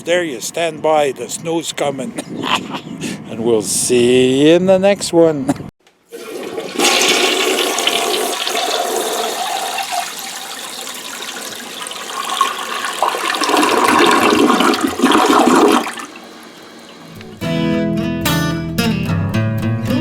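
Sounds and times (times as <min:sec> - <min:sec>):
toilet flushing: 0:06.1 - 0:17.3.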